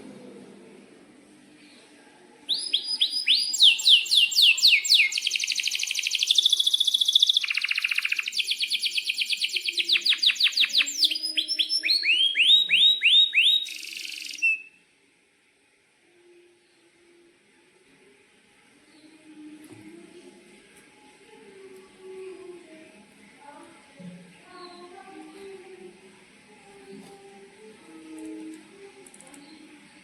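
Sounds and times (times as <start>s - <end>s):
canary singing: 2.5s - 14.8s.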